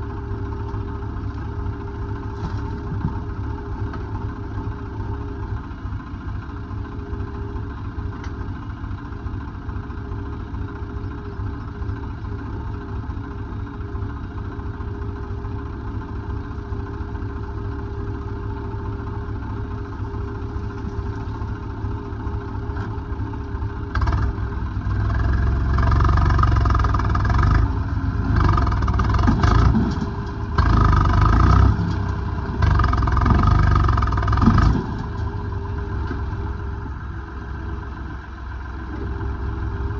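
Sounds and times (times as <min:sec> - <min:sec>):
diesel engine idling and revving: 0:00.0 - 0:39.9.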